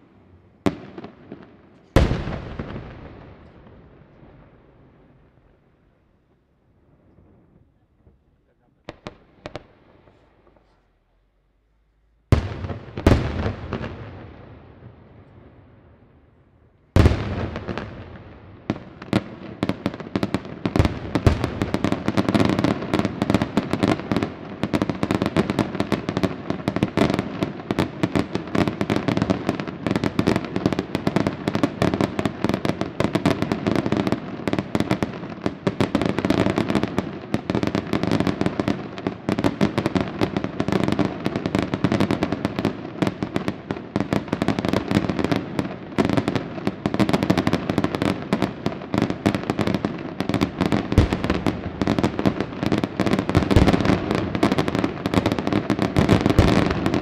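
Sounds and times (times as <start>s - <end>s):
fireworks bursting and crackling: 0.0s - 11.3s, 12.2s - 57.0s
heavy firework booms: 0.7s - 5.4s, 12.3s - 15.0s, 17.0s - 43.2s, 46.9s - 57.0s.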